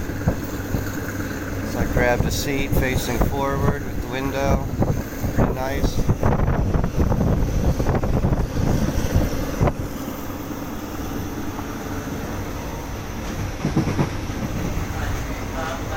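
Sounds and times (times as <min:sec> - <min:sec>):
train wheels rumbling: 0:00.0 - 0:15.9
wind buffeting microphone: 0:00.0 - 0:15.9
knocks: 0:13.6 - 0:14.6.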